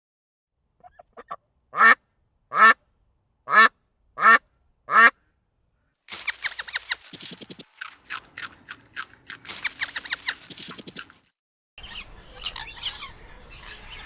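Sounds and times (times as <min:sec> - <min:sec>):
busy high calls: 0:06.1 - 0:11.2
duck quacking: 0:06.1 - 0:11.2.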